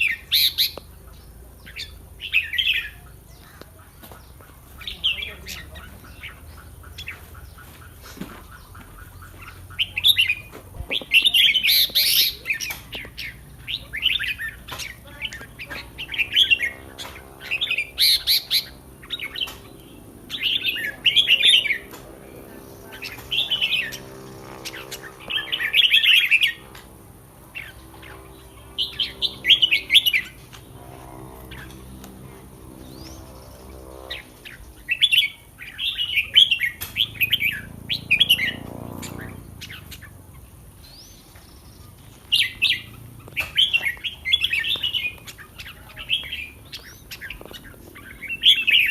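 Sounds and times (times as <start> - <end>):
bird singing: 0.0 - 48.9.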